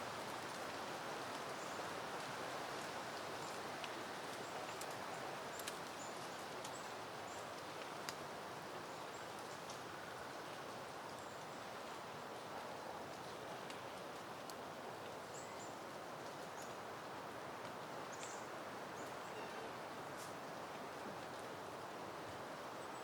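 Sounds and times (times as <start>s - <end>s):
wind rustling leaves: 0.0s - 23.0s
small ticks: 2.8s - 8.2s.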